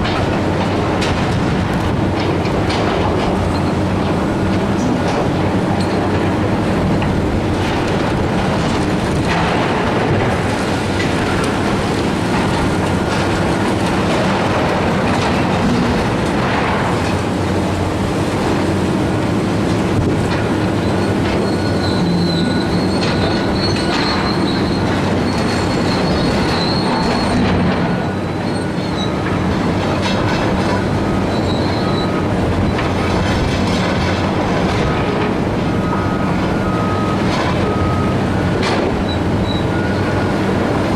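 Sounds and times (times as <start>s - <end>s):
machinery engine drone: 0.0s - 40.9s
high metal squeal: 20.8s - 29.2s, 31.1s - 32.2s, 35.8s - 40.4s.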